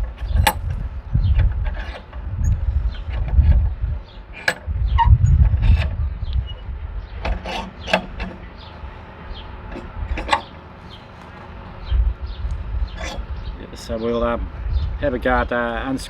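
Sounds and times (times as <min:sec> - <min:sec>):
metal clicks and knocks: 0:00.0 - 0:03.7, 0:04.3 - 0:06.6, 0:07.2 - 0:08.8, 0:09.6 - 0:11.4
rubbing handling noise: 0:00.0 - 0:11.9.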